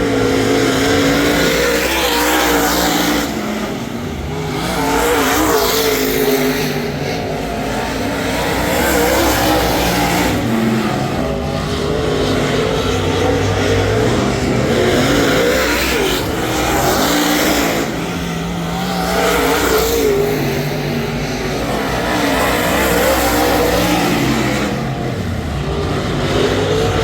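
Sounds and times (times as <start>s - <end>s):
race car engine running hard: 0.0s - 27.0s.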